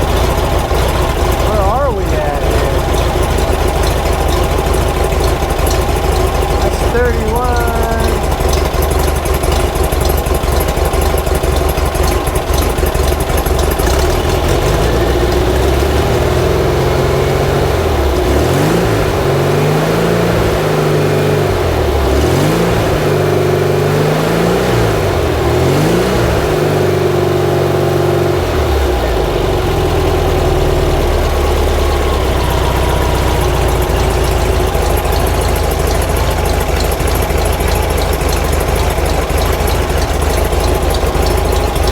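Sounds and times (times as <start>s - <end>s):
engine idling and revving: 0.0s - 41.9s.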